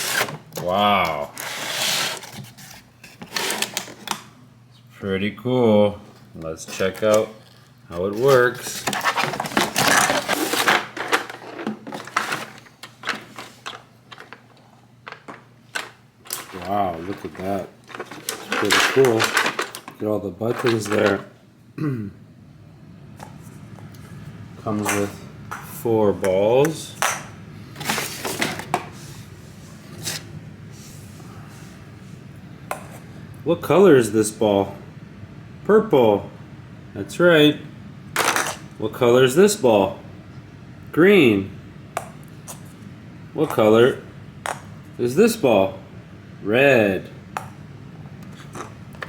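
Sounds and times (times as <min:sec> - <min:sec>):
plastic toy rustling and scraping: 0:00.0 - 0:00.5, 0:01.3 - 0:04.2, 0:06.6 - 0:21.3, 0:27.8 - 0:31.1.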